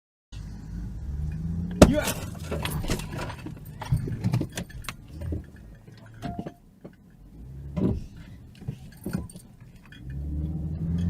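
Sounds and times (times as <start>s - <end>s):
car engine rumble: 0.4s - 11.0s
light rattles and knocks in car: 1.8s - 10.2s.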